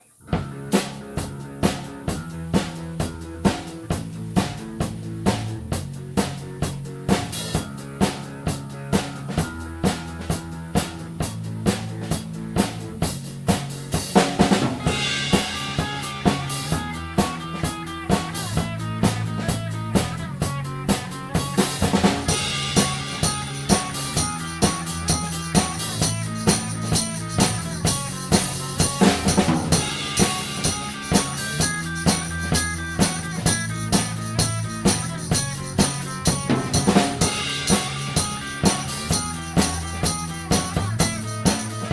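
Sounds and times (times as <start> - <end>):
drum kit beat: 0.0 - 41.9
bass line: 0.2 - 41.9
cymbal crashes: 14.8 - 17.4, 21.8 - 26.2, 28.2 - 40.2.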